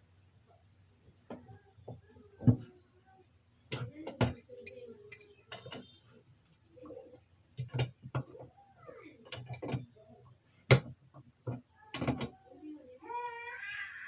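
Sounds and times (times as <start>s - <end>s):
hand tools clinking on metal: 4.1s - 5.9s.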